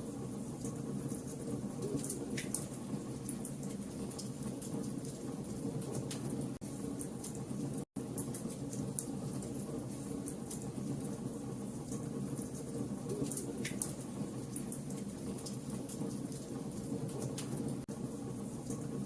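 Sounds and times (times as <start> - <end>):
fire crackles and pops: 0.5 - 17.8.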